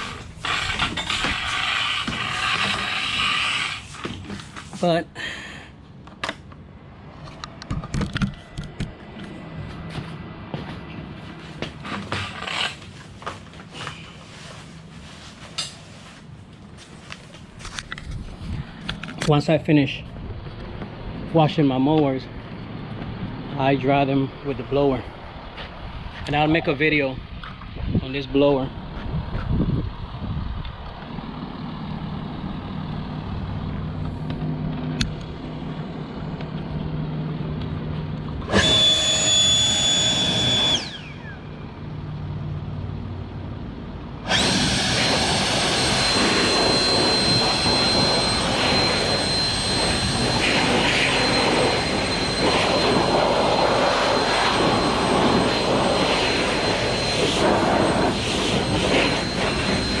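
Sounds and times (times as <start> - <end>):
leaf blower whining: 0.0 - 4.9, 11.5 - 14.4, 38.3 - 41.6, 44.2 - 60.0.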